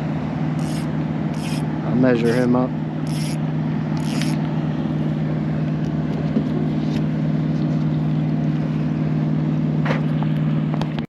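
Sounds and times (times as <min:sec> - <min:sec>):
motorboat engine droning: 0:00.0 - 0:11.0.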